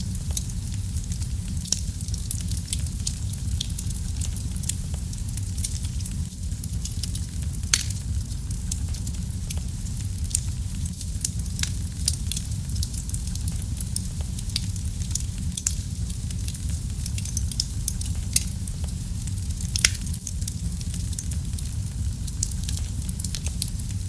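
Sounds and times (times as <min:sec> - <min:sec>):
burning wood crackling and popping: 0:00.0 - 0:24.0
low rush of flame: 0:00.0 - 0:24.0.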